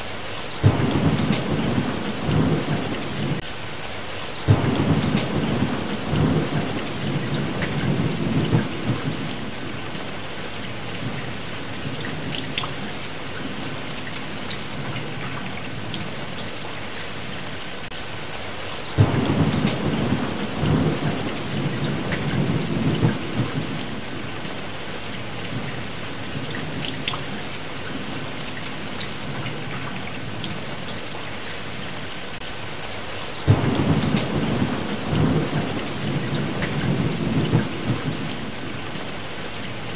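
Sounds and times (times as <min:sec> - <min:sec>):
steady rain: 0:00.0 - 0:39.9
thunder rolling: 0:19.0 - 0:23.8, 0:33.5 - 0:38.3.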